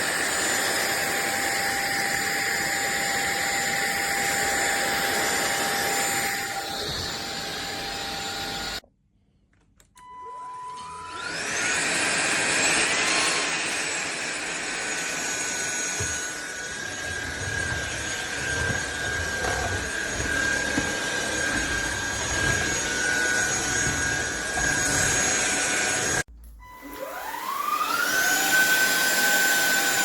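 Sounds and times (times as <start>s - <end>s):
vacuum cleaner motor whine: 0.0s - 8.8s, 10.0s - 30.0s.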